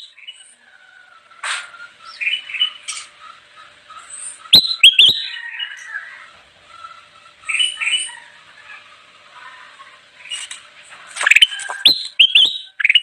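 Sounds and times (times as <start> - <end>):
bulbul chirping and trilling: 1.4 - 6.0, 11.2 - 13.0.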